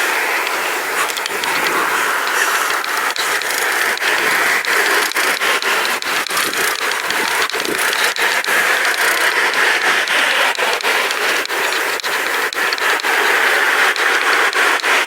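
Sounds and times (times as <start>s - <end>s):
bike frame clicks and rattles: 0.3s - 15.0s.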